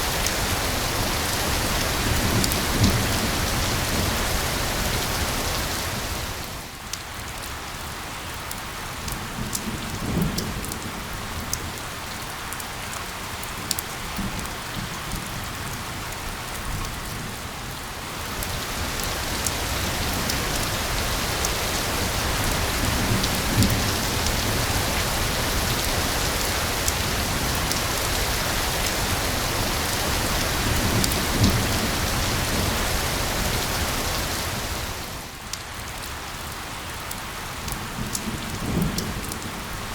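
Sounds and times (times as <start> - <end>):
steady rain falling: 0.0 - 39.9
raindrop ticks: 6.8 - 7.5, 18.3 - 29.0.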